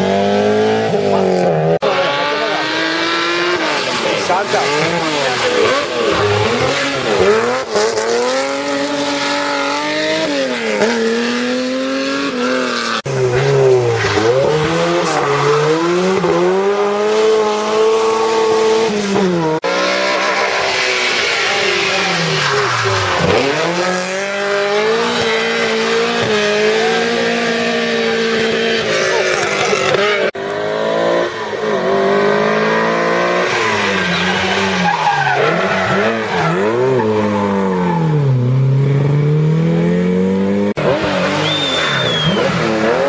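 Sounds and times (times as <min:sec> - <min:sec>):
rally car engines revving: 0:00.0 - 0:43.0.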